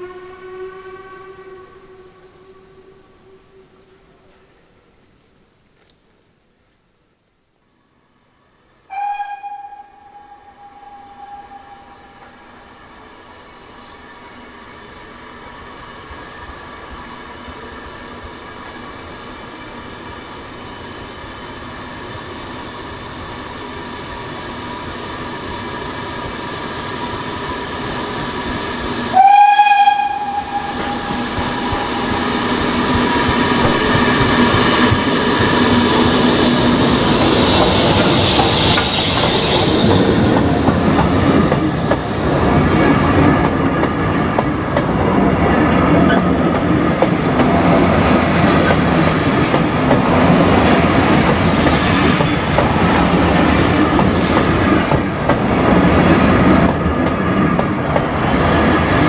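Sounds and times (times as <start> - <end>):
locomotive whistle blast: 0.0 - 3.8, 8.9 - 13.4, 29.0 - 34.9
steam train passing: 0.0 - 5.7, 7.7 - 59.0.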